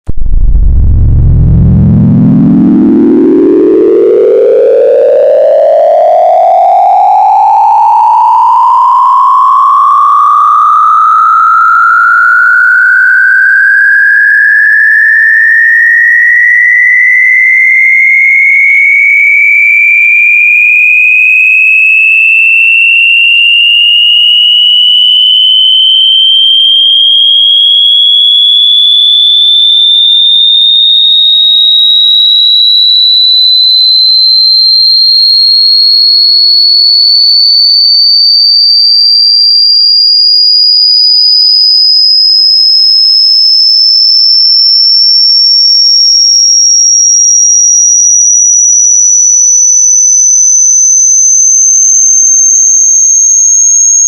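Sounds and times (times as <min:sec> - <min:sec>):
electronic tone rising in pitch: 0:00.1 - 0:28.9, 0:45.6 - 0:54.0.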